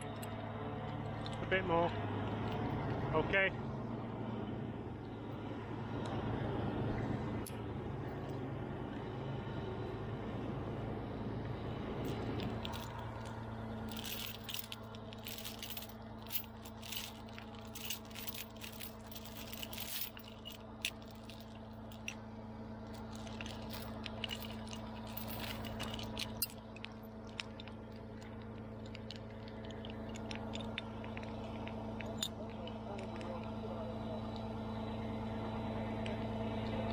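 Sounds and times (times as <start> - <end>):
crane engine humming: 0.0 - 36.9
scraping and clinking: 12.0 - 22.2, 22.9 - 32.8.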